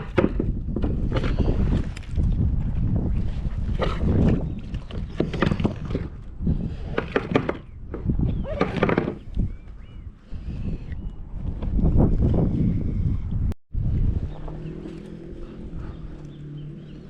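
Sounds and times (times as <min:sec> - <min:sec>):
knocks from boat and gear: 0:00.0 - 0:01.4, 0:03.7 - 0:06.2, 0:06.9 - 0:09.3
wind buffeting microphone: 0:00.0 - 0:17.0.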